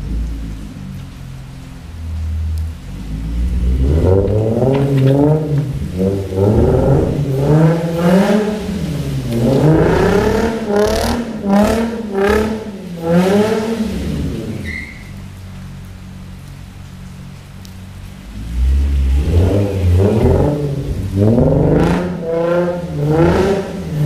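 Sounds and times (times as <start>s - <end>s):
car engine revving hard: 2.8s - 15.0s, 18.2s - 24.0s.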